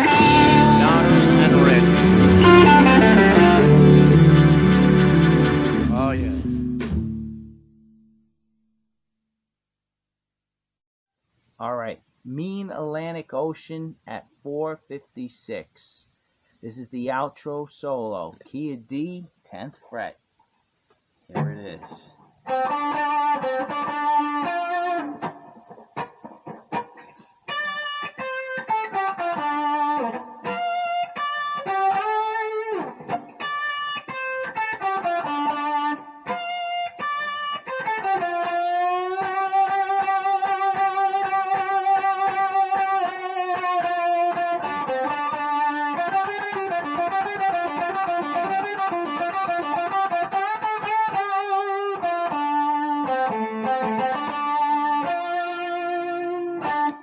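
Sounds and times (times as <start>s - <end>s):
electric guitar blues solo: 0.0s - 6.9s, 21.3s - 57.0s.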